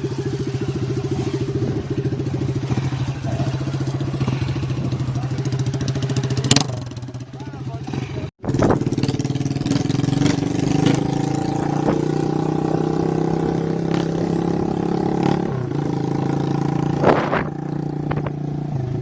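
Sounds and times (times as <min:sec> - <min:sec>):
motorcycle engine with bare exhaust: 0:00.0 - 0:19.0
exhaust cracks: 0:16.8 - 0:18.4.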